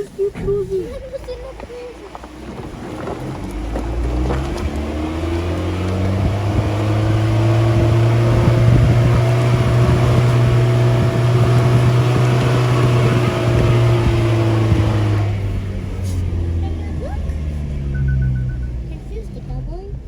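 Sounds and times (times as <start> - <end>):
engine running under load: 0.0 - 20.0
low uneven rumble: 0.0 - 20.0.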